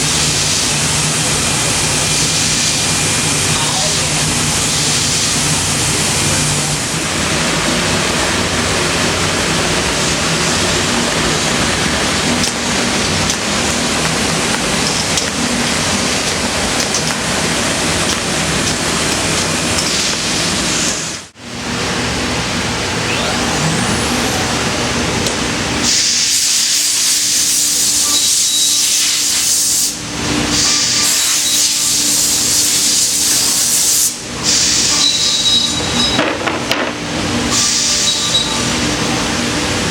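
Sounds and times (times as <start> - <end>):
machine hum: 22.4 - 26.2
router cutting wood hissing: 22.5 - 26.4.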